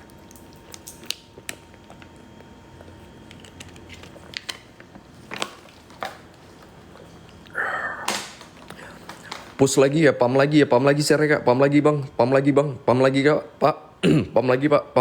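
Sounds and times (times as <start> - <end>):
small clicks and crunches: 0.0 - 7.5, 8.1 - 9.6
faint steady hum: 0.0 - 15.0.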